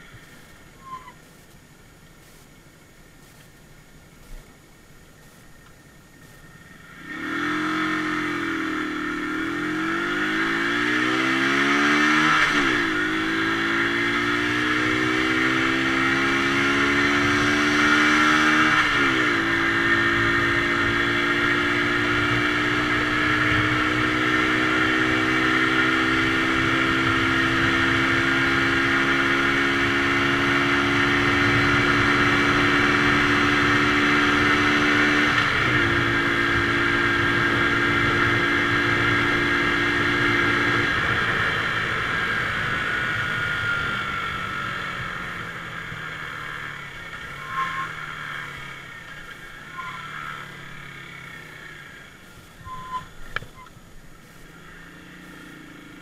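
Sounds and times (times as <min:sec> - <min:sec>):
motorcycle engine accelerating: 0:05.2 - 0:56.0.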